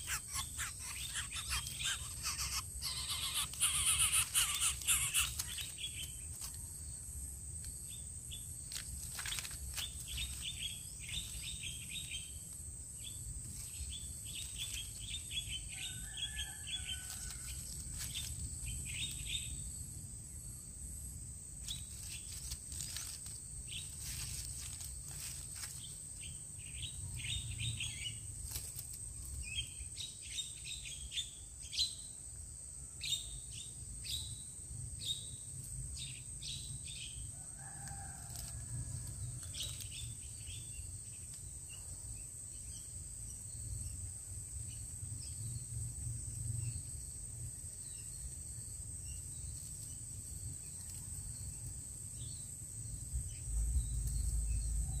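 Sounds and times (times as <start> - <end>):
small birds chirping: 0.0 - 19.9, 21.6 - 32.2
high insect drone: 0.0 - 55.0.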